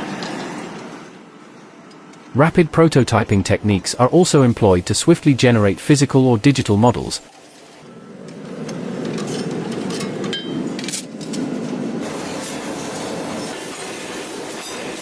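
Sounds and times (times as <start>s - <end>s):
factory machinery running: 0.0s - 15.0s
metallic clanks of steel parts: 8.6s - 11.8s.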